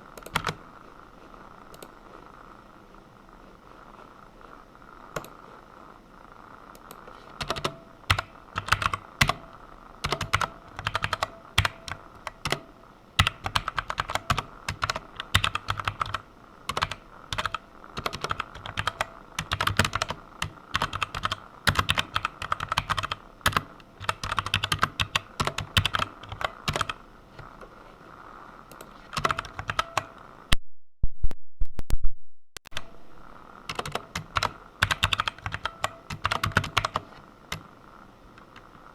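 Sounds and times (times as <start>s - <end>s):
computer keyboard typing: 0.2s - 0.6s, 5.2s - 5.4s, 6.8s - 27.5s, 28.7s - 30.2s, 33.7s - 37.7s.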